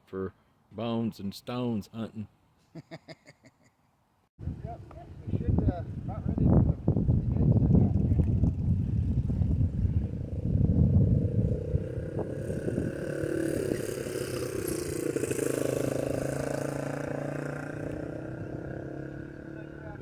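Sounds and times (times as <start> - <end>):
vehicle engine passing by: 7.4 - 20.0.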